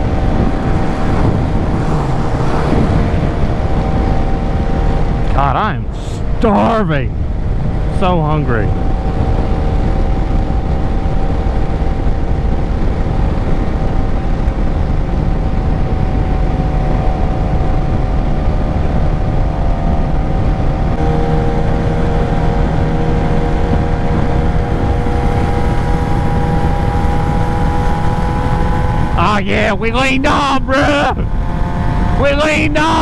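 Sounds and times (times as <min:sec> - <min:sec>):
motorcycle engine cruising: 0:00.0 - 0:33.0.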